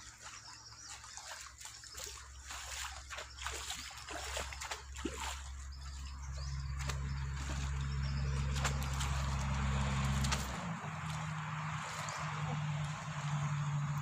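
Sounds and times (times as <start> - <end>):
pond water splashing: 0.0 - 14.0
low hum: 5.5 - 14.0.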